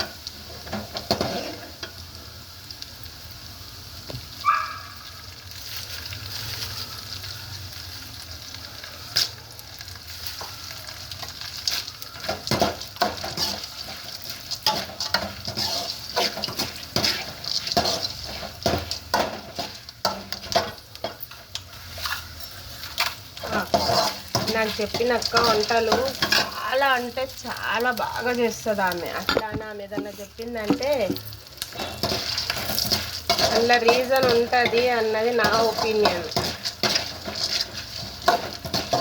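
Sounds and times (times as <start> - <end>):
spoon scraping and knocking pan: 0.0 - 1.6, 12.2 - 26.7, 29.0 - 39.0
food sizzling in oil in a pan: 0.0 - 39.0.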